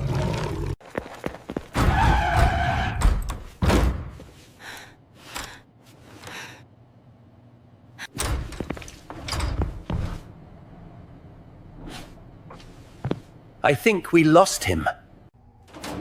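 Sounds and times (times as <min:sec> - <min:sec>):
heavy thuds and slams: 0:01.7 - 0:04.3.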